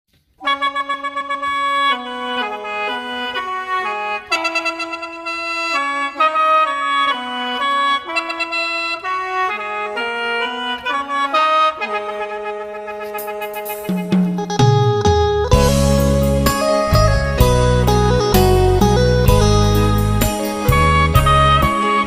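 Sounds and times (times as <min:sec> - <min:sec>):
free-reed mouth organ melody: 0:13.0 - 0:22.0.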